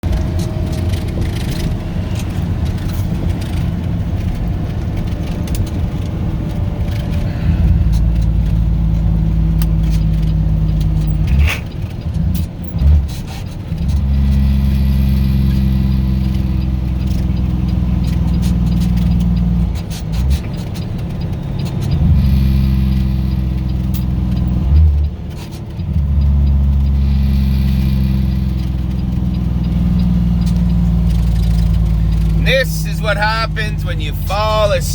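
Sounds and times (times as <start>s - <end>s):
truck engine droning: 0.0s - 34.9s.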